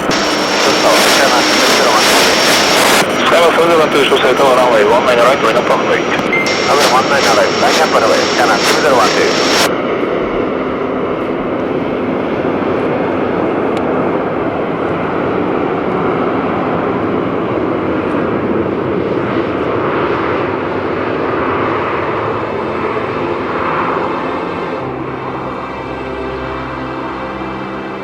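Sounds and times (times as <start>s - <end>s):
jet engines running: 0.0s - 26.7s.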